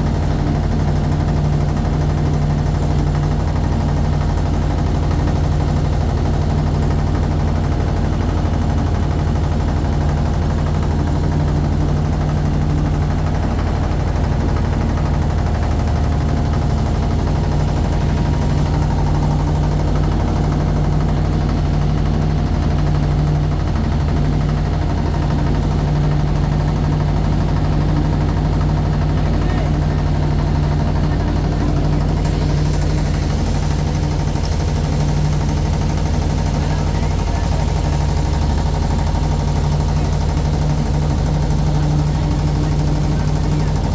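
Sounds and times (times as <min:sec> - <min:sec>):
motorboat engine running: 0:00.0 - 0:43.9.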